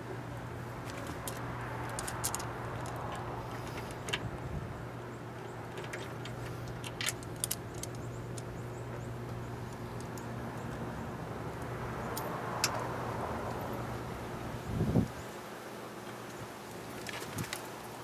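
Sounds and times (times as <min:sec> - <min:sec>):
steady low hum: 0:00.0 - 0:15.3
clicks of small parts handled: 0:00.8 - 0:04.3, 0:05.7 - 0:08.5.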